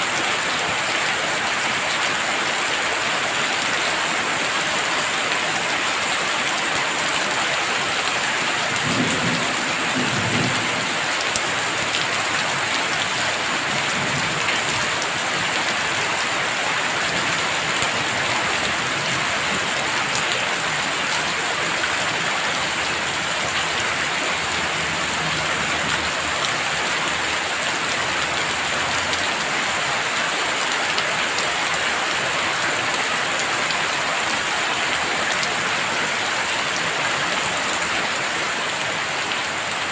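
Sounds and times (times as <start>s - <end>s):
heavy rain falling: 0.0s - 39.9s
distant thunder rumbling: 8.8s - 11.8s.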